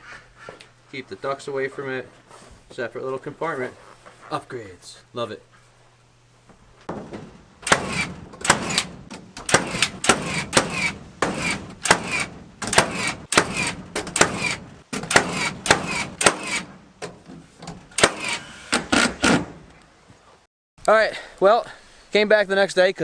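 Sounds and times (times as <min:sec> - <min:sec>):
hammering on wood: 0:06.9 - 0:17.2.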